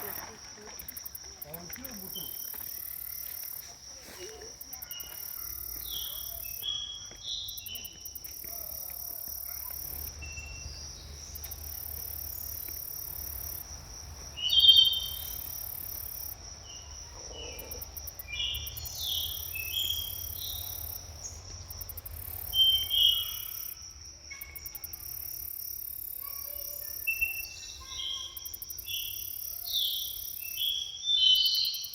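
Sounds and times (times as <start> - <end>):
insects chirring: 0.0 - 31.9
birds singing whistled notes: 14.4 - 15.4, 22.5 - 23.6, 27.1 - 31.9.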